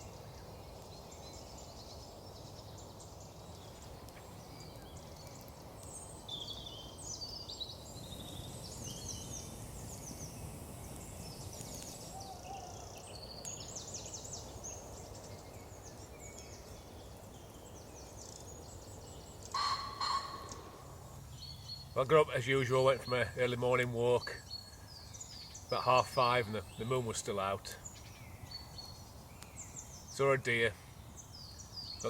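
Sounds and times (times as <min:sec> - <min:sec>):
songbirds chirping: 0:00.0 - 0:32.0.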